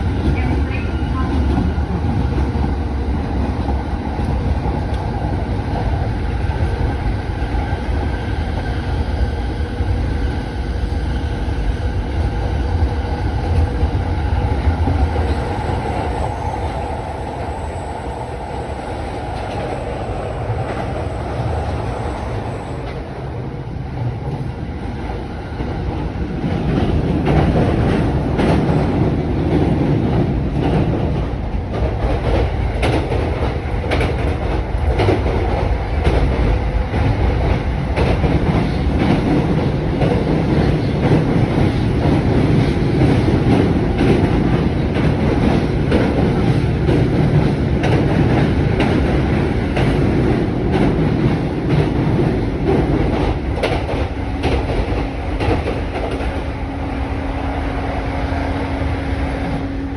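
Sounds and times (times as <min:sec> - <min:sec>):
train rumbling on rails: 0:00.0 - 0:59.9
wheels clickety-clack: 0:24.0 - 0:56.5.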